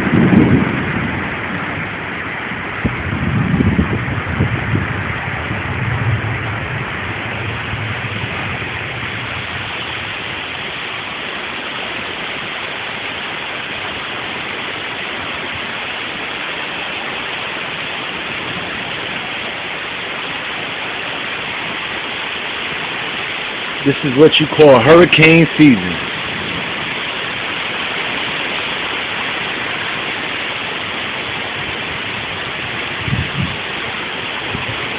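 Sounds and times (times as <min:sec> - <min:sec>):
low rumble: 0:00.0 - 0:11.6
heavy rain pouring: 0:00.0 - 0:34.9.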